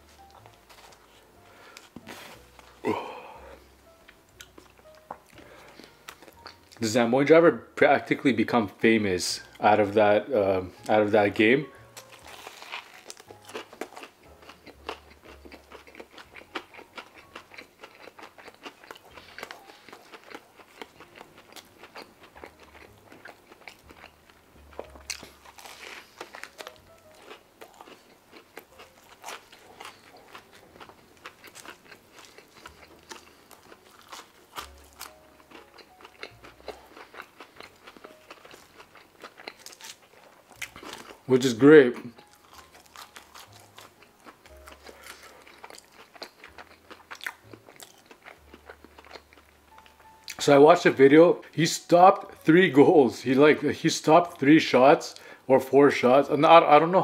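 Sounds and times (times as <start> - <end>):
crunchy chewing: 0.0 - 3.4, 4.1 - 6.8, 11.9 - 41.3, 42.0 - 50.4.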